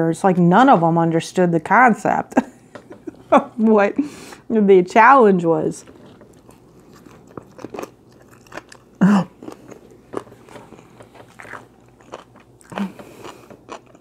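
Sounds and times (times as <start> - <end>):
chewing salad greens: 5.7 - 14.0.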